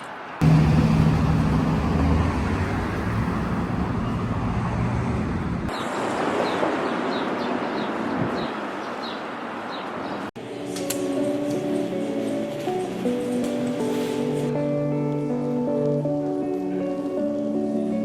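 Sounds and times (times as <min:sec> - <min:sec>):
city traffic noise: 0:00.0 - 0:14.2
low engine hum: 0:00.4 - 0:05.7.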